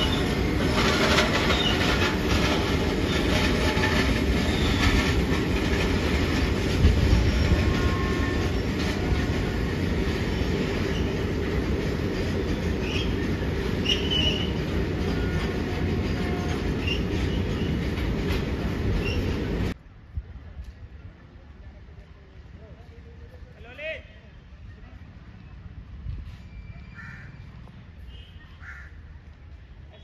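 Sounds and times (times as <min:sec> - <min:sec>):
high wheel squeals: 0:00.0 - 0:05.7, 0:06.8 - 0:19.8, 0:26.2 - 0:27.4
train wheels rumbling on rails: 0:00.0 - 0:23.4.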